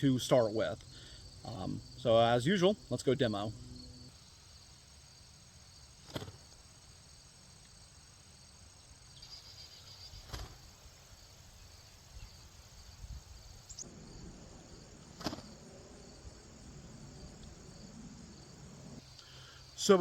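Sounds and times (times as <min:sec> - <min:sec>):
crickets chirring: 0:00.0 - 0:20.0
sharp clicks of spear throws: 0:06.0 - 0:06.4, 0:15.2 - 0:15.5.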